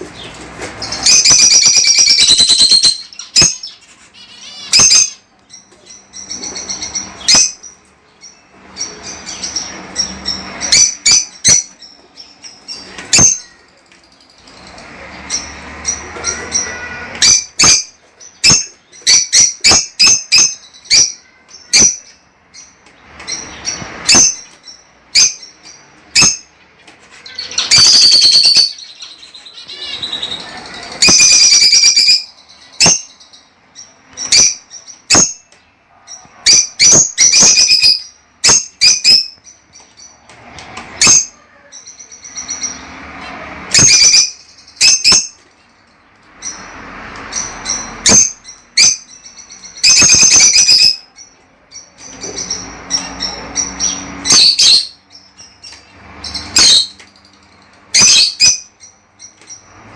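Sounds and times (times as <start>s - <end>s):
lovebirds chirping: 0.0s - 59.9s.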